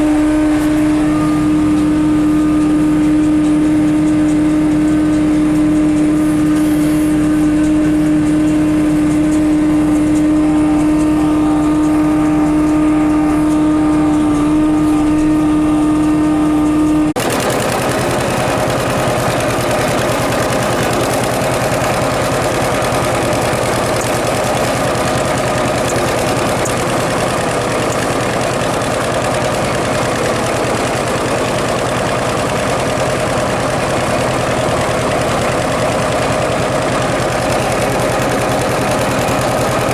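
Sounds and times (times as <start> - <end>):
tractor and baler droning: 0.0 - 39.9.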